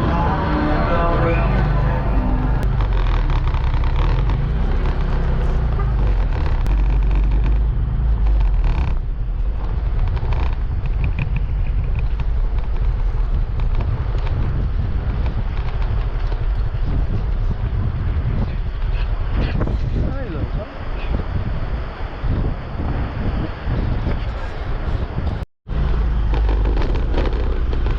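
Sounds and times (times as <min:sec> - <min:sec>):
road noise: 0:00.0 - 0:27.9
motor scooter engine: 0:01.8 - 0:09.0.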